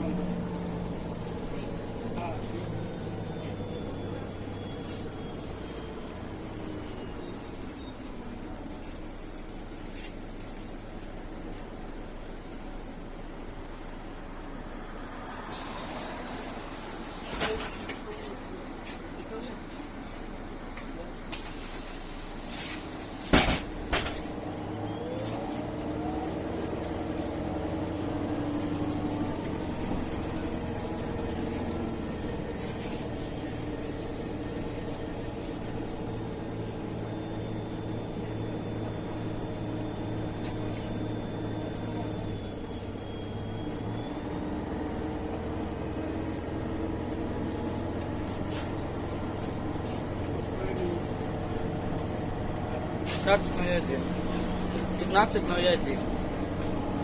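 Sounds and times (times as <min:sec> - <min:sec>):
faint rising whines: 0:00.0 - 0:18.1, 0:24.3 - 0:57.0
bus engine running: 0:00.0 - 0:57.0
loud clunks: 0:23.2 - 0:24.3.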